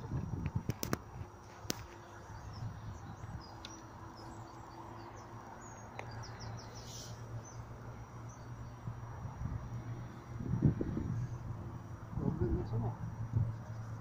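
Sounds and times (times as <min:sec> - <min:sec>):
low rumble of background noise: 0:00.0 - 0:14.0
birds chirping: 0:00.8 - 0:14.0.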